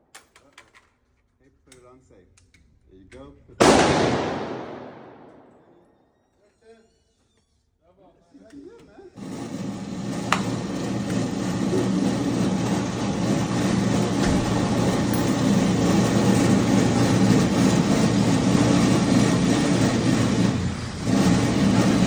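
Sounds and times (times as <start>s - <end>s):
low mechanical drone: 3.6s - 5.7s, 9.2s - 22.0s.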